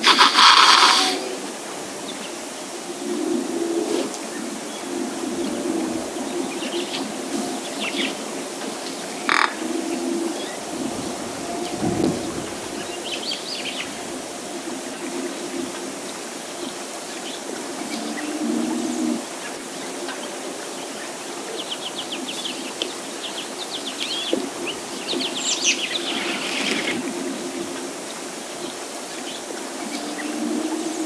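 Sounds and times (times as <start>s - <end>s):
small birds chirping: 4.4s - 14.4s.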